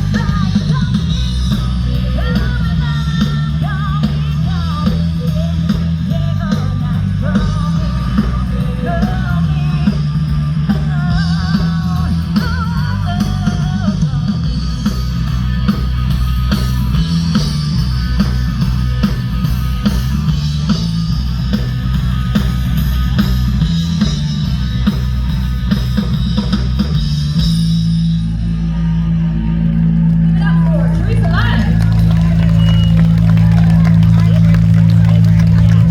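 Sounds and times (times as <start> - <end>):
person singing: 0.0 - 14.5
drum-kit beat: 0.0 - 28.6, 30.4 - 35.9
bass guitar: 0.0 - 35.9.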